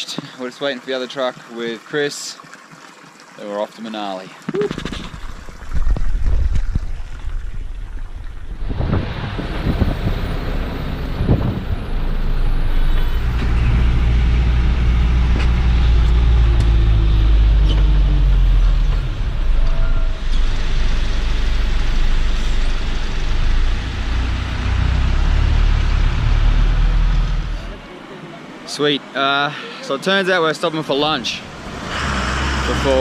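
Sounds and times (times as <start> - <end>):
truck engine rumble: 5.0 - 28.7.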